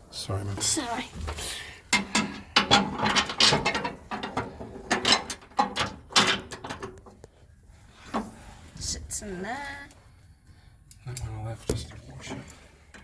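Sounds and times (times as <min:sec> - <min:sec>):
metallic clanks of bolts and tools: 0:01.9 - 0:07.1.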